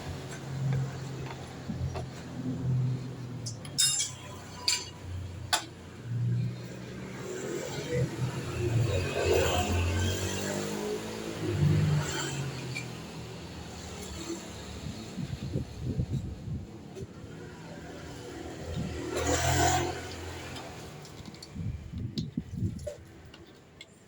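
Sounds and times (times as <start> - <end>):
metallic clinks of tools: 3.4 - 5.0.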